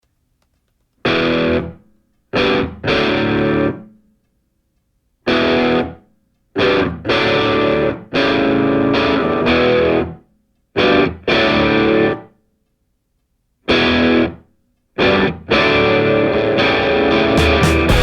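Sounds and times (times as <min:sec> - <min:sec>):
distorted electric guitar chords: 0:15.0 - 0:18.0.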